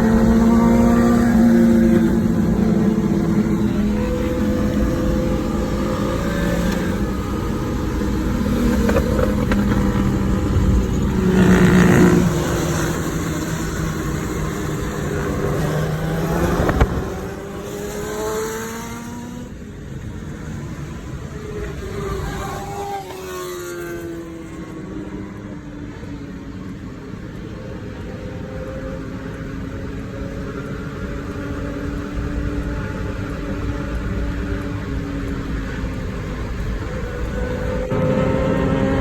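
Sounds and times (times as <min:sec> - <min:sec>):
motorcycle engines running: 0:00.0 - 0:39.0.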